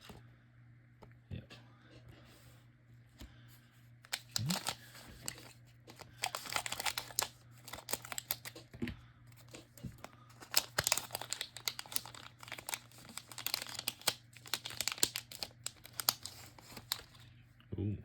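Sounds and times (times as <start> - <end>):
wrapper crinkling and tearing: 4.1 - 8.6, 9.4 - 17.2.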